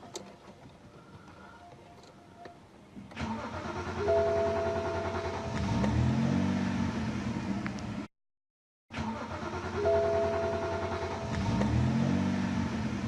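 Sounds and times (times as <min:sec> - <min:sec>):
starter motor whine: 0:03.1 - 0:06.1, 0:09.0 - 0:12.4
car engine starting and revving: 0:03.1 - 0:08.1, 0:08.9 - 0:13.0.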